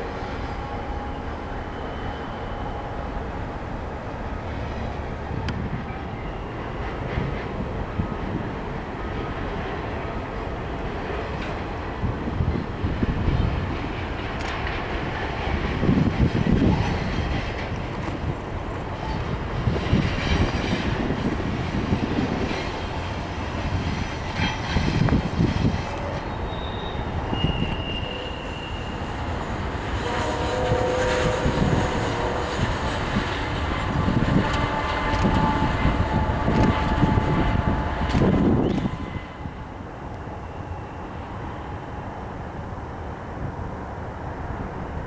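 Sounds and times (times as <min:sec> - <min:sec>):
train wheels rumbling on rails: 0:00.0 - 0:45.0
high wheel squeal: 0:00.2 - 0:03.1, 0:26.1 - 0:32.8, 0:40.4 - 0:41.9.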